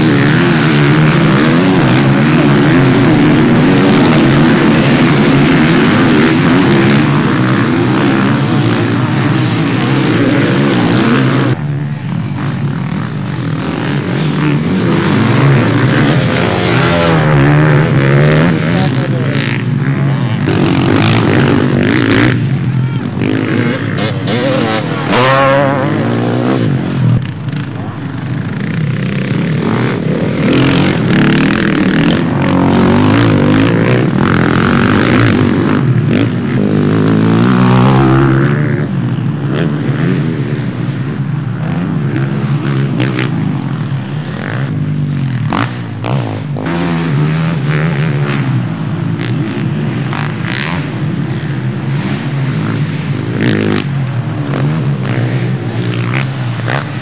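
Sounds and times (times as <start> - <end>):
motocross bike engines revving: 0.0 - 57.0.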